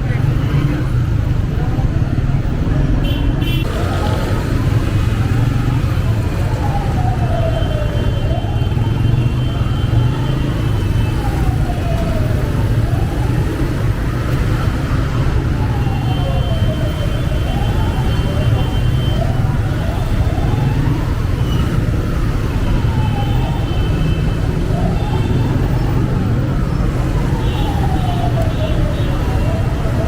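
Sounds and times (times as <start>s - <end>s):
wailing siren tone: 3.8s - 30.0s.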